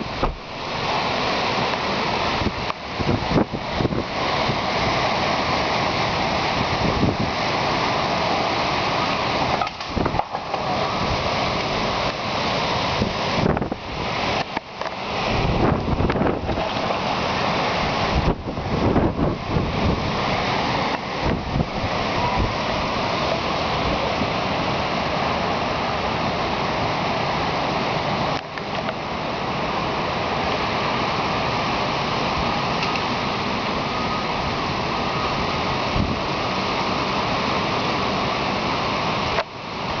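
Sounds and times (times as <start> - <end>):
strong wind rushing: 0.0 - 14.4, 15.0 - 26.0, 30.6 - 36.8
wind buffeting microphone: 2.2 - 5.0, 6.0 - 7.6, 9.2 - 12.2, 12.8 - 24.9, 34.3 - 36.5.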